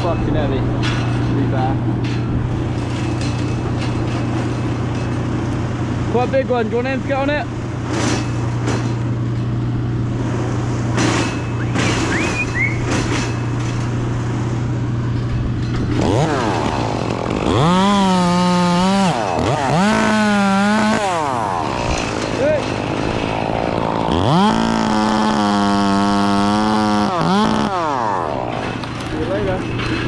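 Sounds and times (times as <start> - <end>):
chainsaw engine revving: 15.6 - 30.0.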